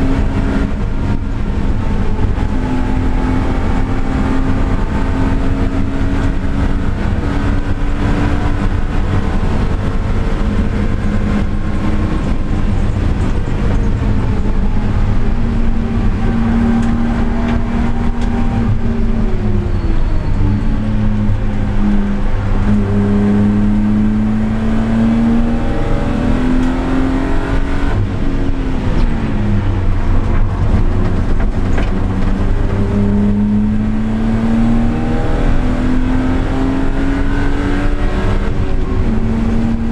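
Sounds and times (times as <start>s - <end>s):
race car engine and exhaust: 0.0s - 39.9s.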